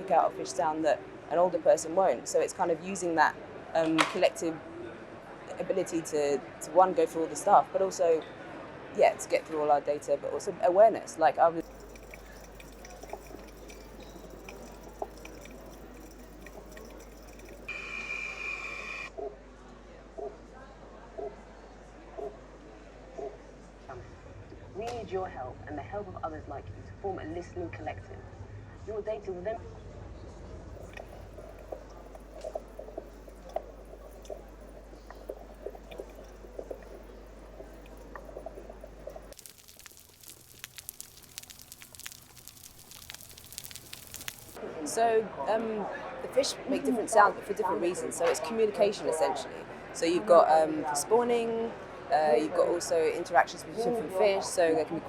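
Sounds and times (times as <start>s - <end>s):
steady low hum: 11.6s - 17.7s, 30.8s - 44.6s
soft clicks and pops: 30.8s - 44.6s.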